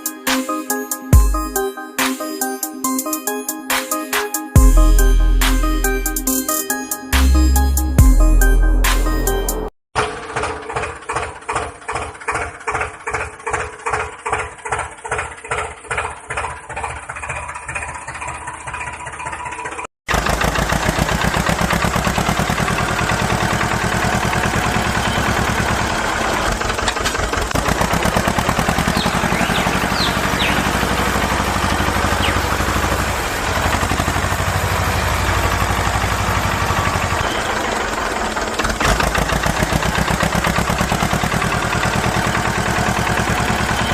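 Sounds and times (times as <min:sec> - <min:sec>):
small tractor engine running: 0:10.0 - 0:43.9.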